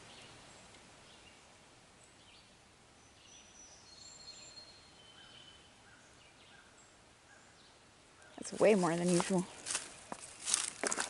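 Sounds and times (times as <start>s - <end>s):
birds singing high whistles: 3.0s - 8.4s.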